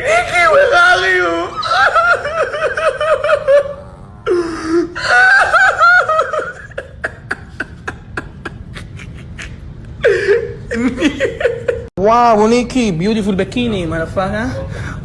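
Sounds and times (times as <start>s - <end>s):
person laughing: 1.5s - 11.9s.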